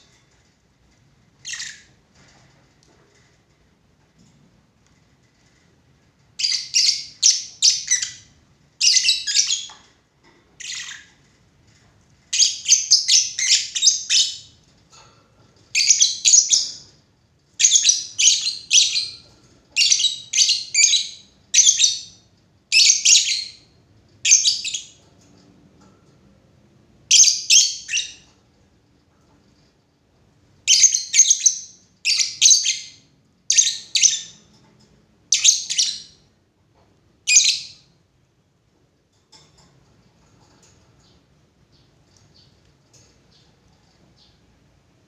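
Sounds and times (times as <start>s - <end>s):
lovebird chirping: 1.4s - 1.9s, 6.4s - 9.8s, 10.6s - 11.1s, 12.3s - 14.5s, 15.7s - 16.9s, 17.6s - 19.2s, 19.8s - 25.0s, 27.1s - 28.3s, 30.7s - 34.4s, 35.3s - 36.3s, 37.3s - 37.9s.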